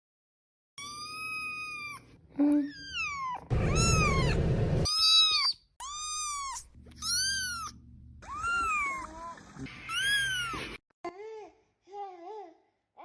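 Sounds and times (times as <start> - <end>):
cat meowing: 2.7 - 9.2.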